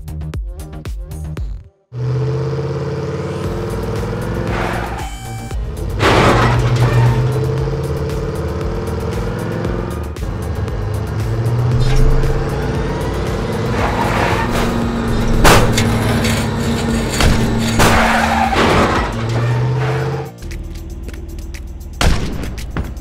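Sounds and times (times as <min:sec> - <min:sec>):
car engine sound effect: 0:02.0 - 0:22.1
toy car crash: 0:06.0 - 0:07.2, 0:15.3 - 0:19.6.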